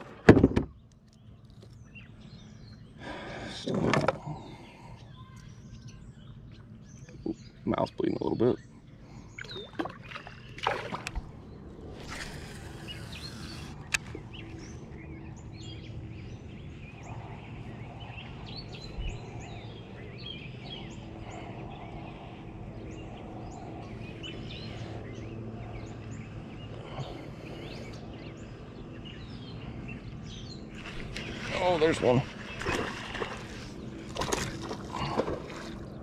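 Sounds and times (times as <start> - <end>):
outdoor background noise: 0.0 - 36.0
birds singing and chirping: 0.4 - 36.0
faint steady hum: 8.6 - 36.0.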